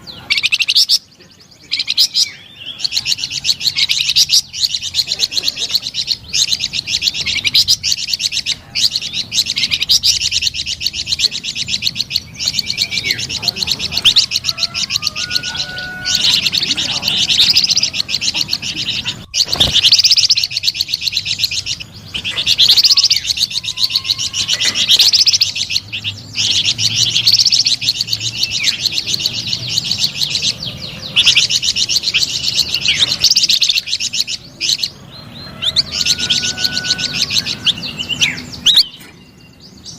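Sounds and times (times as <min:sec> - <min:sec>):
songbird trilling: 0:00.0 - 0:39.9.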